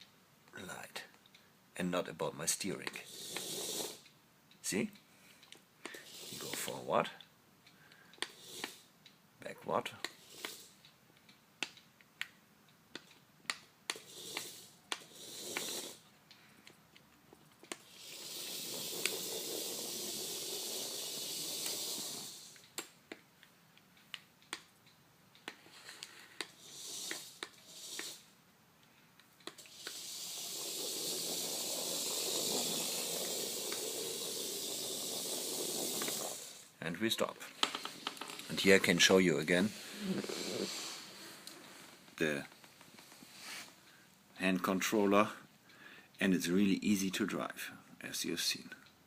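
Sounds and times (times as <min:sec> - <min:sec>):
sharp clicks: 0:10.0 - 0:17.9, 0:21.3 - 0:36.4
electric motor whirring: 0:17.9 - 0:22.6, 0:29.6 - 0:36.7.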